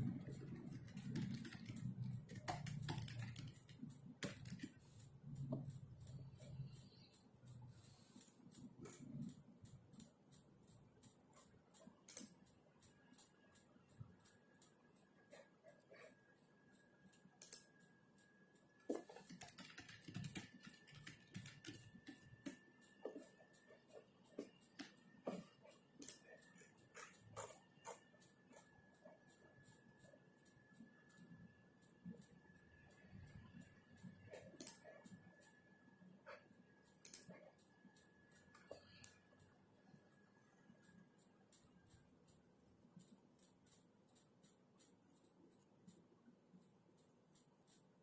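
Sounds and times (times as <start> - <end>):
keyboard typing clicks: 0.0 - 16.2, 16.8 - 35.6, 36.2 - 39.6.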